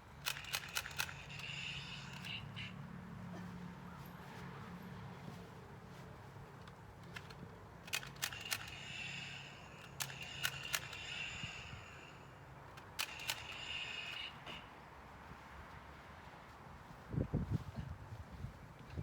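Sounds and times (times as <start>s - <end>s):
handgun action clicking: 0.2s - 2.4s, 7.0s - 11.6s, 12.7s - 14.3s.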